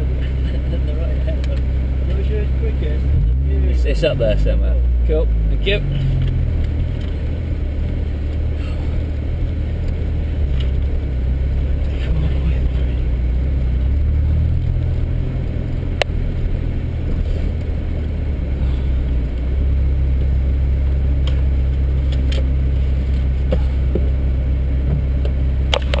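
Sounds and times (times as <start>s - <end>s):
car engine droning: 0.0s - 26.0s.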